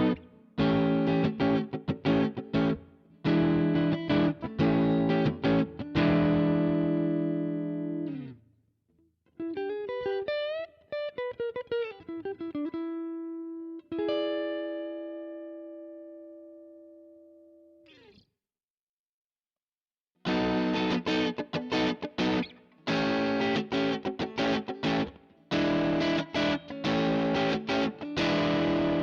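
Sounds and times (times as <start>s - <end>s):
electric guitar strummed chords: 0.0s - 8.4s, 20.3s - 29.0s
electric guitar bent single notes: 20.3s - 29.0s.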